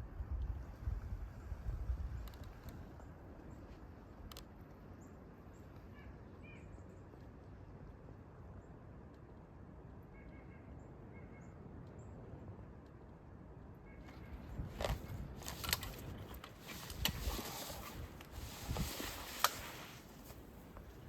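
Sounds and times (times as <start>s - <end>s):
outdoor background hum: 0.0s - 21.0s
faint bird chirps: 4.9s - 7.5s, 10.0s - 12.2s, 13.8s - 14.6s.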